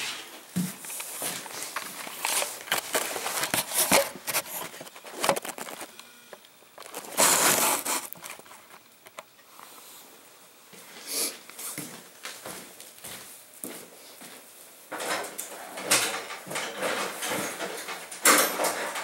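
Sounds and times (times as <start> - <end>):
handling clicks and rustling: 0.8 - 5.9.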